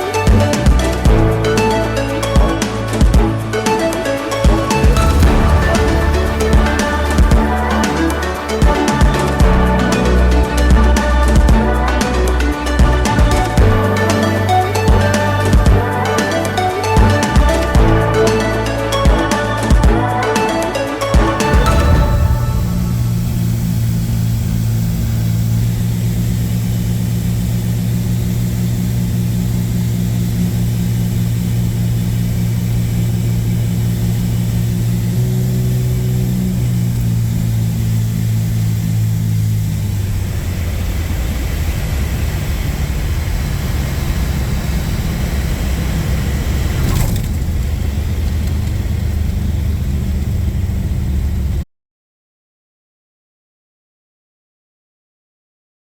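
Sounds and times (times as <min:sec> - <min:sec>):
piston aircraft engines running: 0:21.1 - 0:51.6.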